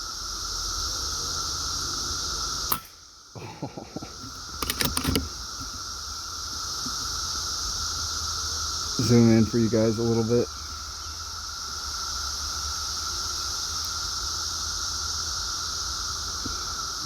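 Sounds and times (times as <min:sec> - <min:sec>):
cicada chorus drone: 0:00.0 - 0:17.0
air rifle shot: 0:02.7 - 0:03.0
quick clicks: 0:04.3 - 0:05.7.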